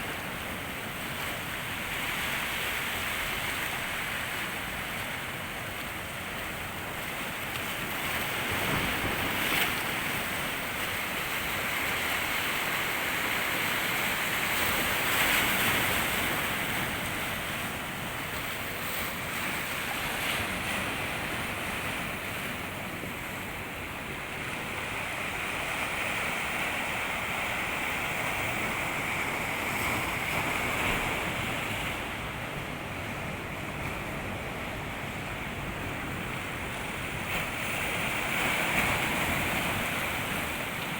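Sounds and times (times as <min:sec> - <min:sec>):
sea waves washing onto shore: 0:00.0 - 0:40.9.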